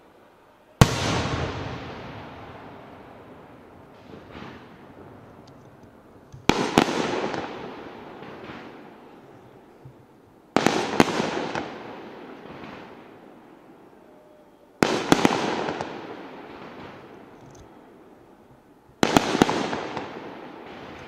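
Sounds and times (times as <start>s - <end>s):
fireworks bursting: 0.8s - 14.0s, 14.7s - 21.0s.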